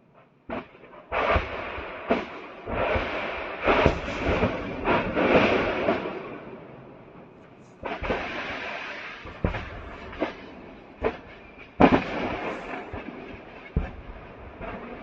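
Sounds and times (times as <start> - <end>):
continuous crackling: 0.0 - 15.0
sharp explosion blasts: 0.5 - 6.6, 7.8 - 15.0.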